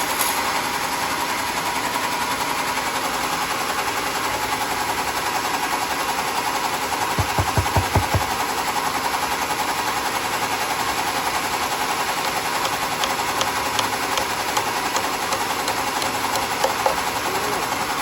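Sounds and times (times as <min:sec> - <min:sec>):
sawmill machinery chattering: 0:11.3 - 0:17.8.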